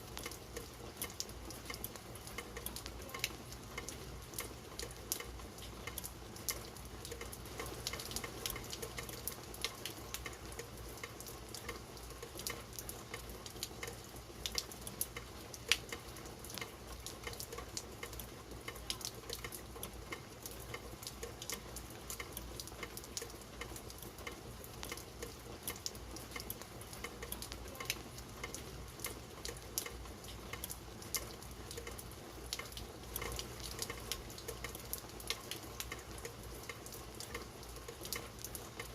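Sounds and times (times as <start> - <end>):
rain drops pattering: 0.0 - 38.9
rain hiss: 0.0 - 38.9.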